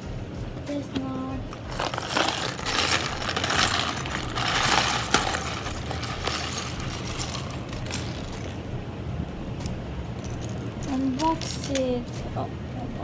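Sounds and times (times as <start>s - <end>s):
packaging and small parts rattling: 1.5s - 8.6s, 10.2s - 11.9s.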